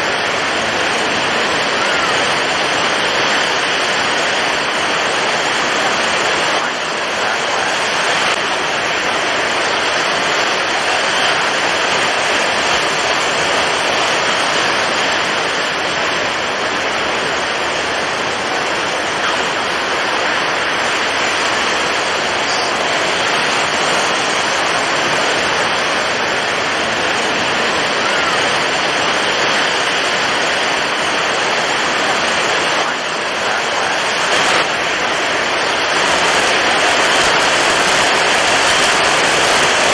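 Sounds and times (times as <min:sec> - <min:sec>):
heavy waves breaking: 0:00.0 - 0:39.9
strong wind: 0:00.0 - 0:39.9.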